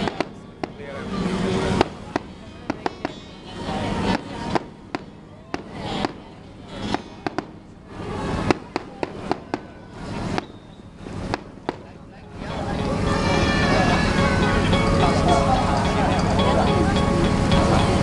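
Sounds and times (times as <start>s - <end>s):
fireworks bangs: 6.9s - 12.0s.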